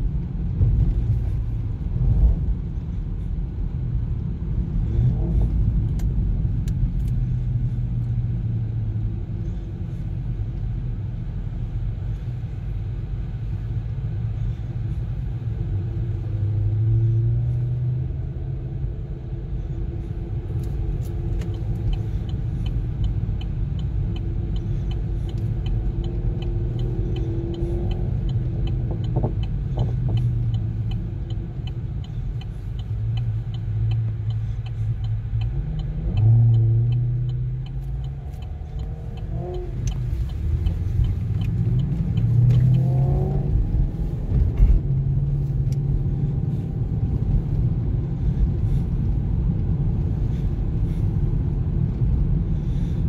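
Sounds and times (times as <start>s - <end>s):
road noise inside car: 0.0s - 53.0s
car engine revving: 15.6s - 53.0s.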